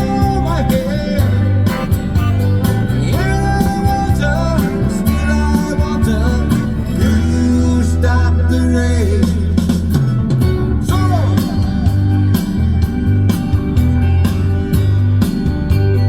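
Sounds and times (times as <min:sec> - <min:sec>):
country rock music with guitar: 0:00.0 - 0:16.0.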